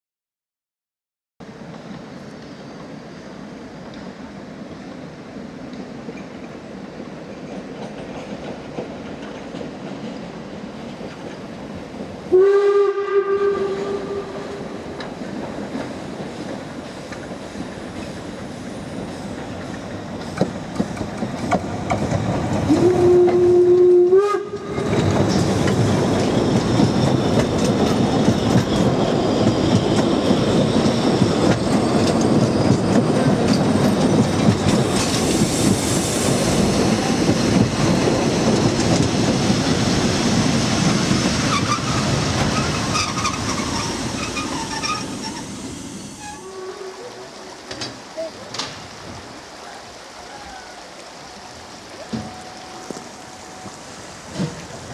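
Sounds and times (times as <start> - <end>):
steam train running: 1.4 - 54.9
steam locomotive whistle: 12.3 - 14.8, 22.7 - 25.0, 46.2 - 47.6.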